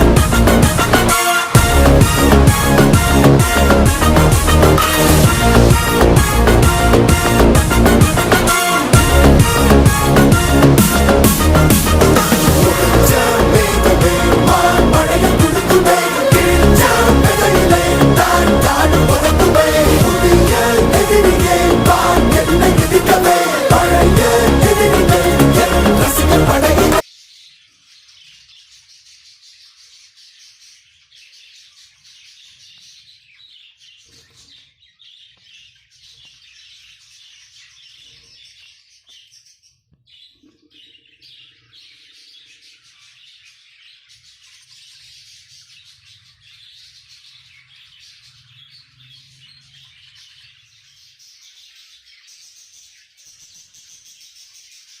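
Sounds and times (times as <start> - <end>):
music: 0.0 - 27.0.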